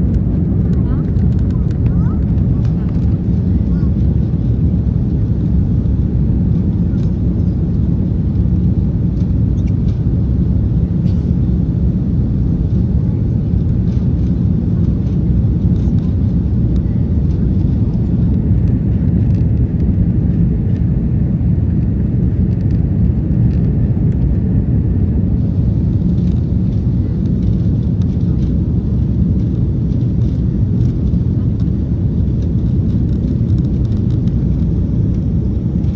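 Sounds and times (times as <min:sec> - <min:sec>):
jet engine rumble: 0:00.0 - 0:35.9.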